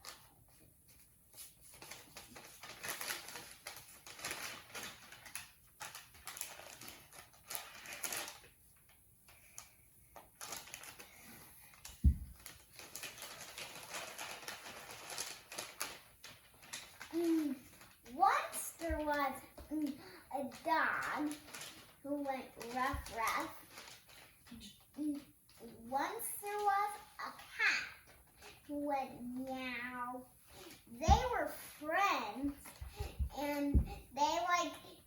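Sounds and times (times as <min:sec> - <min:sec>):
loud dull thump: 0:12.0 - 0:12.4.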